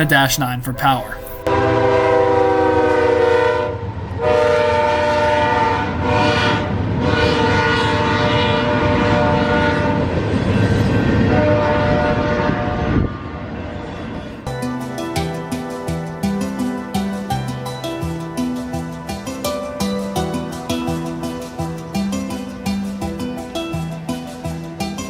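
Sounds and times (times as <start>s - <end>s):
diesel locomotive engines rumbling: 0.0s - 2.0s, 2.8s - 14.5s
locomotive air horn blasts: 0.0s - 10.3s, 11.2s - 13.7s
rail cars rumbling: 1.5s - 14.6s.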